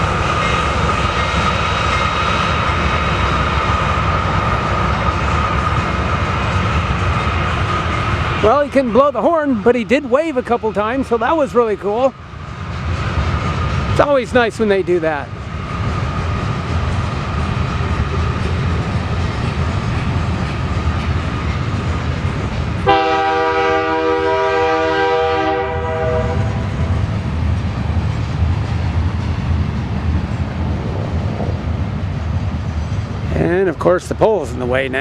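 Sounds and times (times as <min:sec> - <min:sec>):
train rumbling on tracks: 0:00.0 - 0:35.0
locomotive horn blast: 0:22.8 - 0:26.8.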